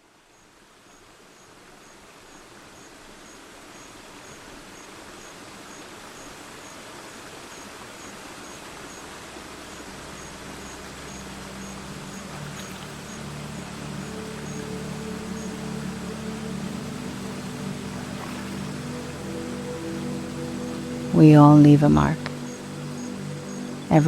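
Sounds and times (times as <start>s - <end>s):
steady rushing hiss: 0.0s - 24.0s
low music tones: 8.8s - 24.0s.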